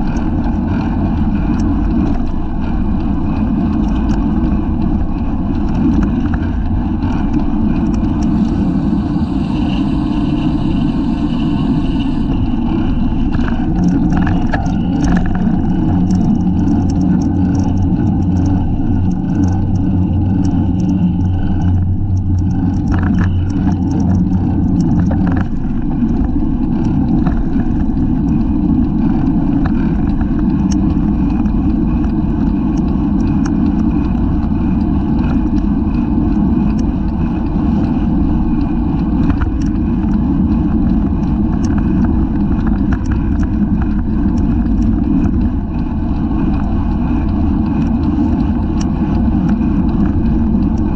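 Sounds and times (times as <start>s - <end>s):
bicycle rattles and clicks: 0.0s - 50.9s
road rumble: 0.0s - 50.9s
wind rushing over microphone: 0.0s - 50.9s.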